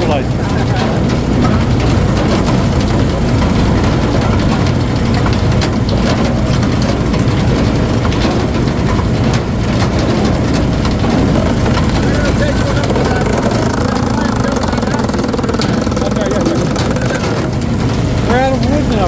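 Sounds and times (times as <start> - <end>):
faint clicks and knocks: 0.0 - 19.0
heavy engine running: 0.0 - 19.0.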